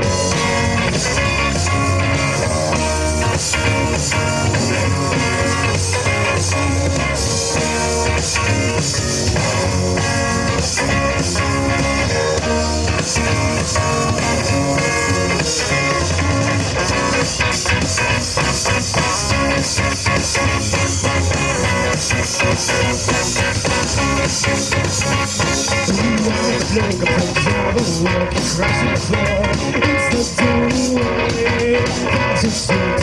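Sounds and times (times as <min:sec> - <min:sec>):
rock band playing instrumental: 0:00.0 - 0:33.0.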